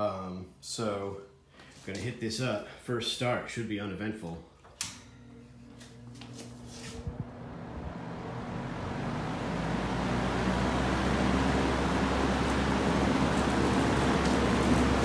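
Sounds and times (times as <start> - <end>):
box fan motor hum and air: 4.8 - 15.0.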